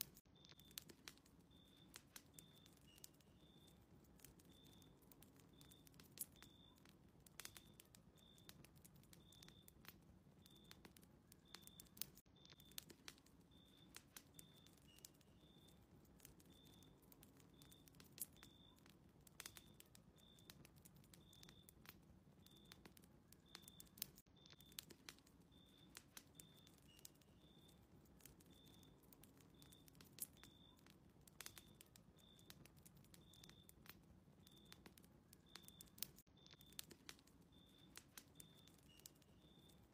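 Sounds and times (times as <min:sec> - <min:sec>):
fire pops: 0:00.0 - 0:39.9
wood fire crackling: 0:00.0 - 0:39.9.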